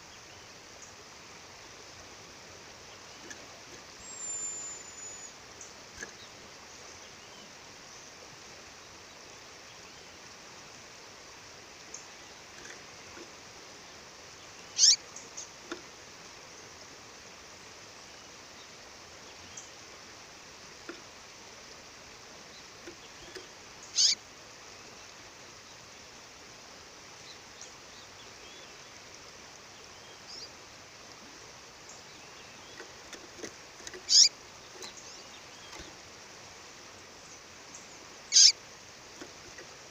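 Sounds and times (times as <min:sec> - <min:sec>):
faint bird chirps: 0:02.8 - 0:08.1, 0:14.4 - 0:15.7, 0:22.4 - 0:24.2, 0:29.7 - 0:30.6, 0:33.8 - 0:36.0, 0:37.2 - 0:38.6
bird's short high call: 0:14.8 - 0:15.0, 0:24.0 - 0:24.2, 0:38.3 - 0:38.6.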